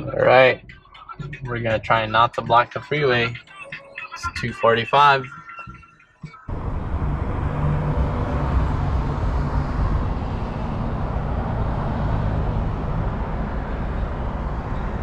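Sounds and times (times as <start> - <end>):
vehicle engine and road noise: 6.4 - 15.0.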